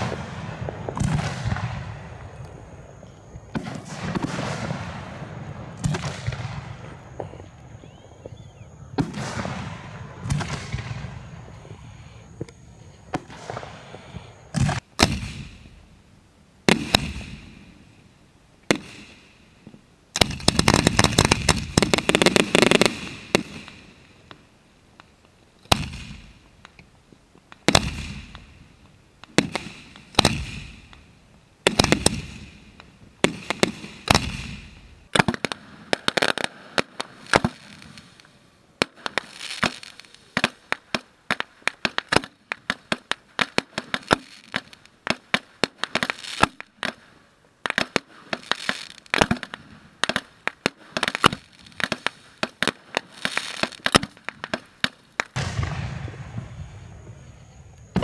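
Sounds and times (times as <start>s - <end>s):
fireworks booming: 0.0s - 16.0s, 16.6s - 18.0s, 18.6s - 24.3s, 25.6s - 26.6s, 27.6s - 38.2s, 47.7s - 58.0s
rapid crackling fireworks: 0.0s - 58.0s.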